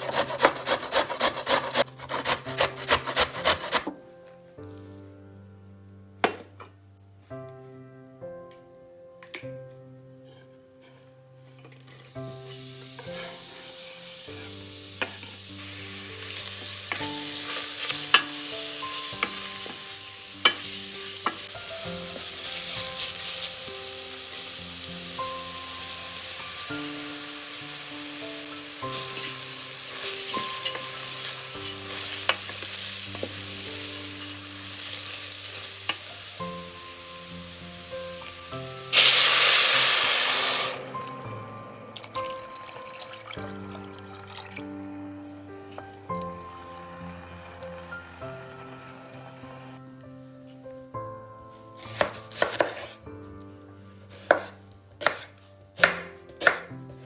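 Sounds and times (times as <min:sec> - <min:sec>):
utensil scraping a pan: 0:00.0 - 0:03.9, 0:13.0 - 0:13.6, 0:28.4 - 0:36.4
quiet background music: 0:00.0 - 0:57.0
food sizzling in oil: 0:12.4 - 0:41.1, 0:42.0 - 0:44.7.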